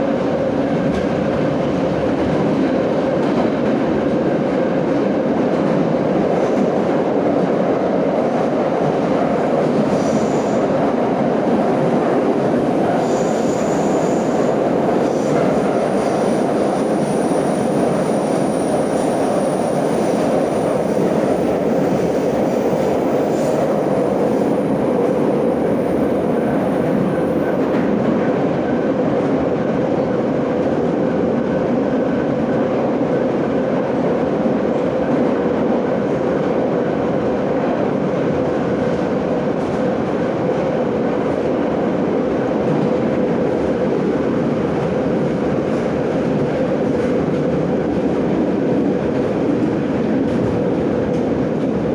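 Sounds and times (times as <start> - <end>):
subway car roar: 0.0 - 51.9
high wheel squeal: 9.4 - 28.0.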